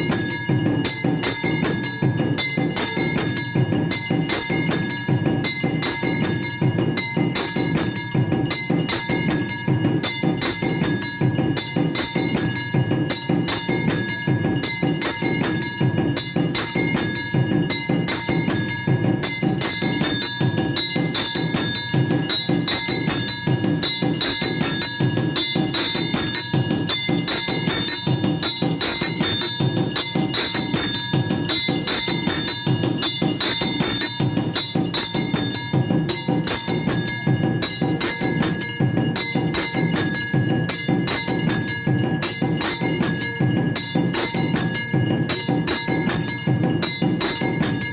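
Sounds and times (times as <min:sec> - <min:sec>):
bells ringing: 0:00.0 - 0:47.9
drum and percussion strikes: 0:00.0 - 0:47.9.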